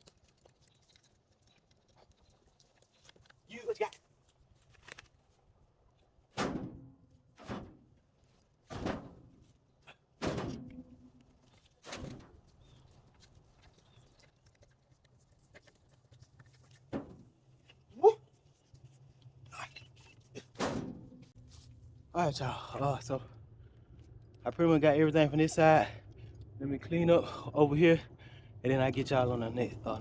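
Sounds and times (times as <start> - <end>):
heavy wooden thuds of logs: 8.7 - 9.4, 10.2 - 11.0.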